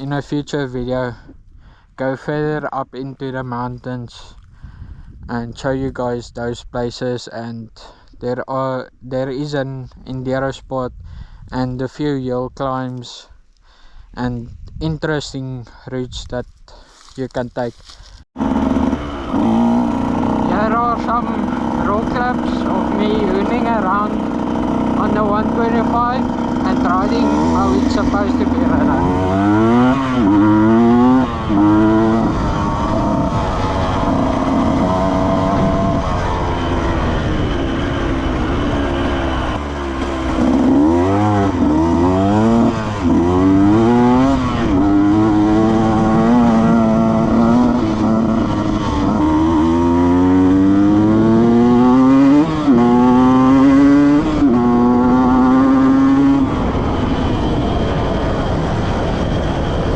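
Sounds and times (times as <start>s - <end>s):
dirt bike engine revving: 18.4s - 59.9s.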